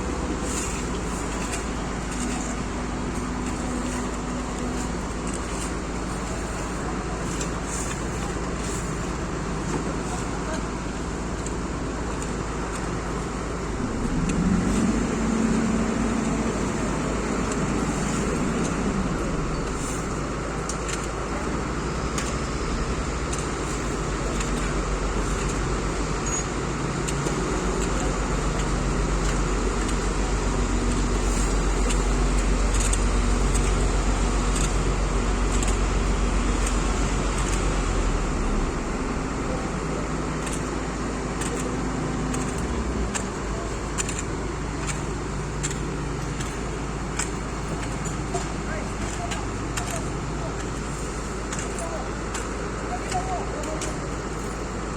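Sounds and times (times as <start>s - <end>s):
low engine hum: 0.0s - 54.9s
road traffic: 0.0s - 54.9s
engine revving: 13.8s - 19.8s.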